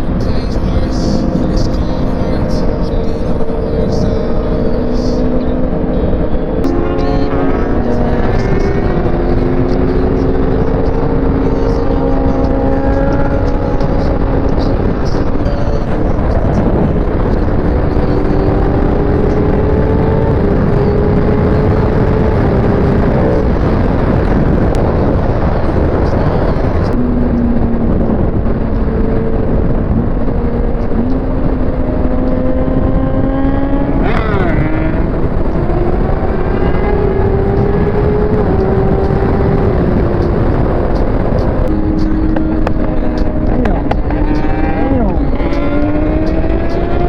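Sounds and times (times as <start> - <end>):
motorcycle engine accelerating: 0.0 - 47.0
wind noise: 0.0 - 47.0.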